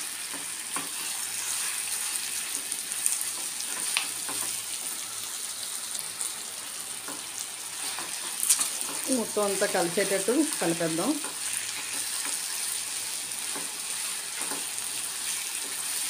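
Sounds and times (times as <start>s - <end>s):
food sizzling in hot oil: 0.0s - 16.0s
spatula tapping a pan: 13.5s - 13.8s, 14.4s - 14.7s.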